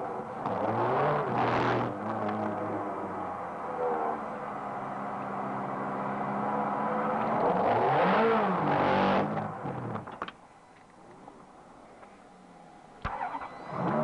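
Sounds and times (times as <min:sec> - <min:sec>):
car engine revving: 0:00.0 - 0:10.1, 0:13.1 - 0:14.0.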